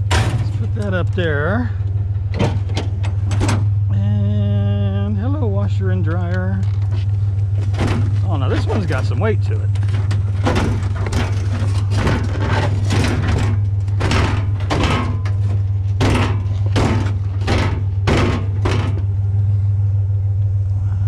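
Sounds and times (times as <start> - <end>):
vehicle engine idling: 0.0 - 21.0
sheet-metal appliance knocks and scrapes: 7.6 - 9.0, 9.8 - 19.1.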